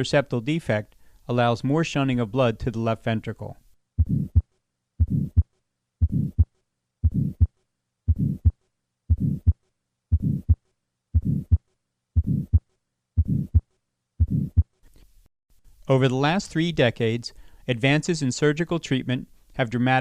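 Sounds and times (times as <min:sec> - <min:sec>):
heartbeat with murmur: 0:04.0 - 0:07.5, 0:08.1 - 0:10.6, 0:11.2 - 0:11.6, 0:12.2 - 0:12.6, 0:13.2 - 0:14.7.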